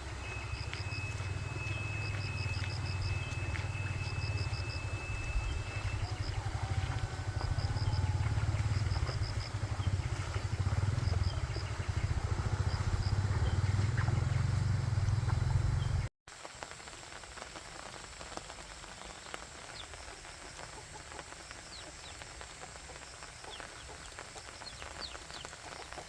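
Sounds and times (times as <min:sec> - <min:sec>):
small engine droning: 0:00.0 - 0:16.1.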